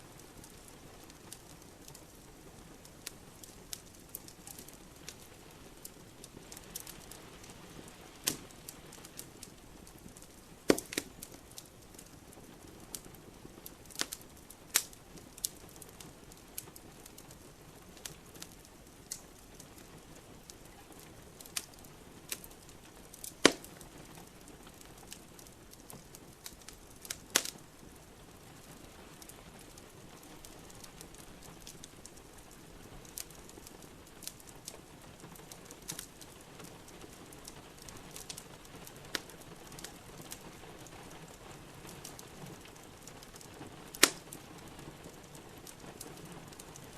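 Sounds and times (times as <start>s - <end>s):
rain hissing: 0.0s - 26.4s
wood fire crackling and popping: 0.0s - 46.9s.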